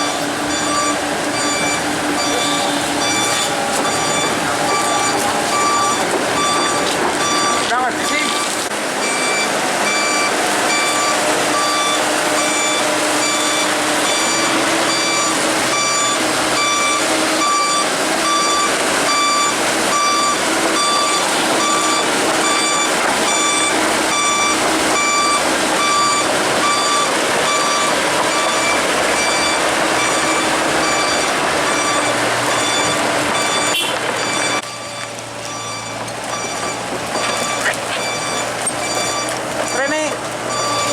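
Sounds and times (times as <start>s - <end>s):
excavator engine running: 0.0s - 40.9s
excavator travel alarm beeping: 0.0s - 40.9s.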